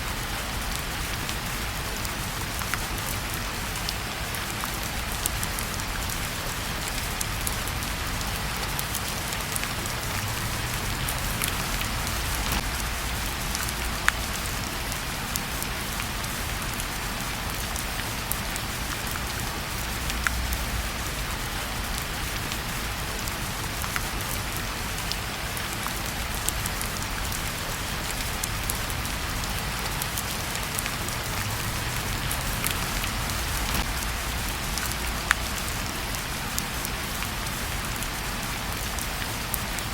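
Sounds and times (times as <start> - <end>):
steady rain falling: 0.0 - 39.9
sharp crackles: 4.6 - 15.0, 26.1 - 37.3.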